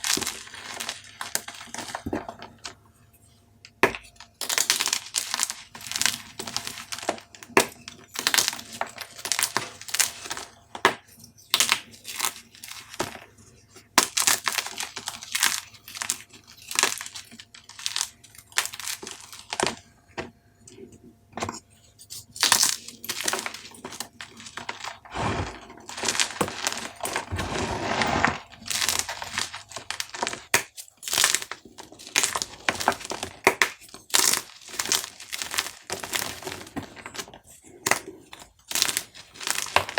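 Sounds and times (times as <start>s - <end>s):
chalk crunching and crackling: 22.2s - 37.1s
chalk crumbling into powder: 24.4s - 30.5s.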